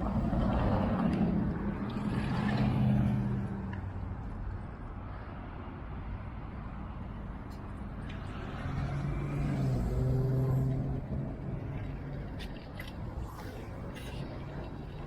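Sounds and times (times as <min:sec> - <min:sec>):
low traffic rumble: 0:00.0 - 0:15.0
vehicle engine passing: 0:08.4 - 0:11.7.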